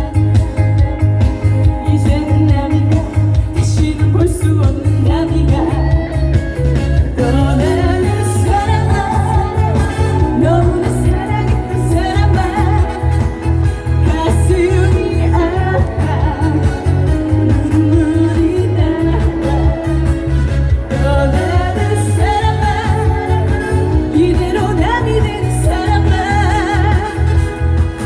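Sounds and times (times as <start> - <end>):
backing track with heavy bass beat: 0.0 - 28.0
woman singing with vibrato: 0.0 - 28.0.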